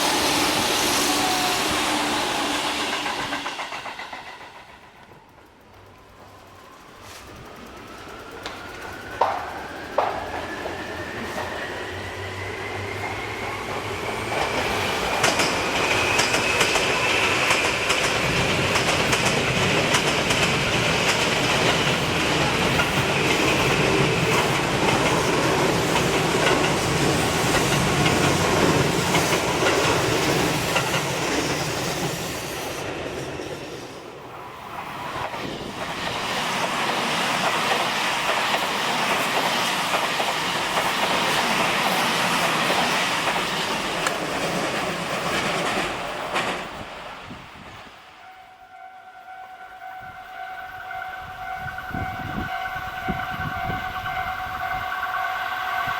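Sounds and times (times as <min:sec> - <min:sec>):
electric train whine: 0:00.0 - 0:55.9
wheels clicking over rail joints: 0:02.8 - 0:11.5, 0:14.3 - 0:32.2, 0:35.2 - 0:47.2.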